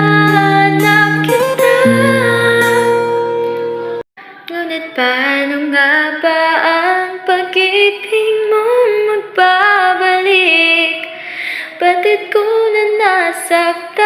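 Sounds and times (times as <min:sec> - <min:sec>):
woman singing slow melody: 0:00.0 - 0:03.2, 0:04.2 - 0:14.0
held chord: 0:00.0 - 0:04.0.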